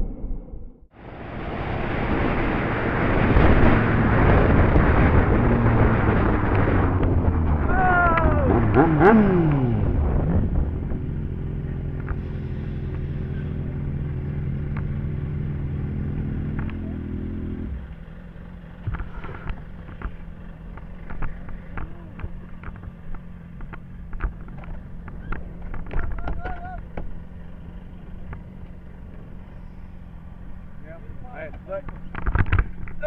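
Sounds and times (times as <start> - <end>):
motorcycle engine idling: 10.5 - 33.0.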